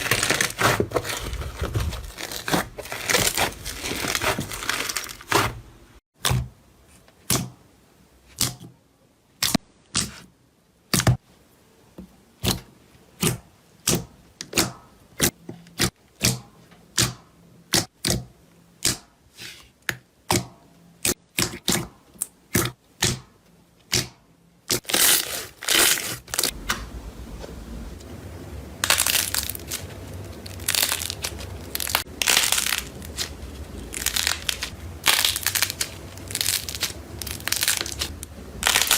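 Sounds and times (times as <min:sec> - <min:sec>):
slime crackling and crunching: 0:00.0 - 0:05.6, 0:24.7 - 0:26.6, 0:28.8 - 0:38.9.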